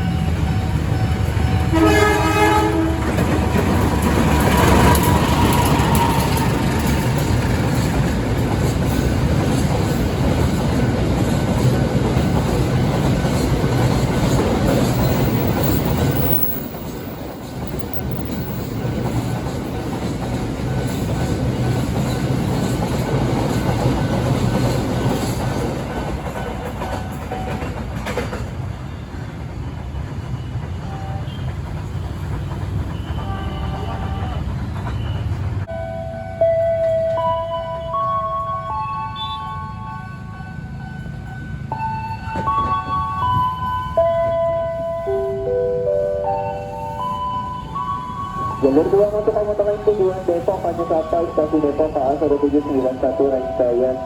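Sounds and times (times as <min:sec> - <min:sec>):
train horn: 0:01.7 - 0:03.3, 0:30.8 - 0:31.6, 0:32.9 - 0:34.6
train wheels clacking over rail joints: 0:02.8 - 0:35.7.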